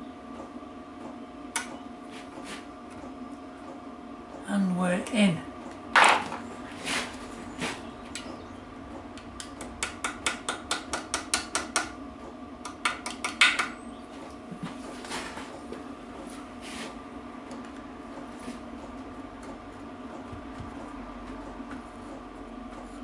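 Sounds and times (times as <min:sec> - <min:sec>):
small hammer tapping on metal: 0:09.4 - 0:12.0, 0:12.6 - 0:13.8.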